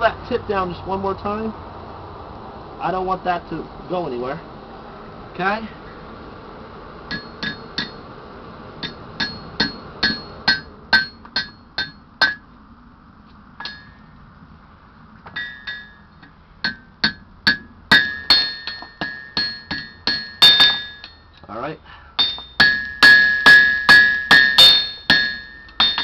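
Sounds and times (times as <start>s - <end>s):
hammer striking steel on anvil: 7.1s - 8.0s, 8.8s - 12.4s, 13.6s - 14.0s, 15.4s - 16.0s, 16.6s - 21.2s, 22.2s - 26.0s.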